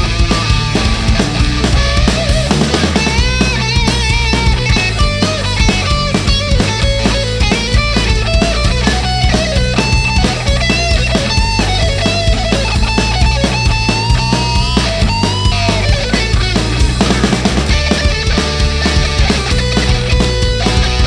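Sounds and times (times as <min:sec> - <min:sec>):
lead electric guitar melody: 0:00.0 - 0:17.1
heavy rock band playing: 0:00.0 - 0:21.0.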